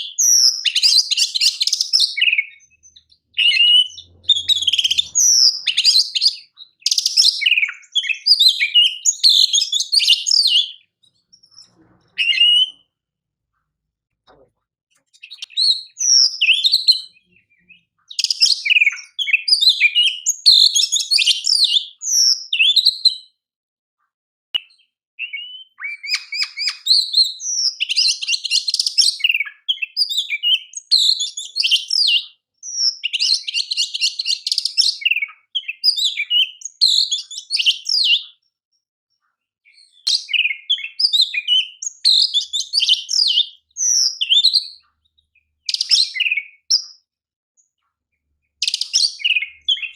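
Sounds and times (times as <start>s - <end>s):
songbird whistling and chattering: 0.0s - 12.9s, 15.0s - 23.3s, 24.6s - 38.4s, 39.7s - 47.0s, 48.6s - 49.9s.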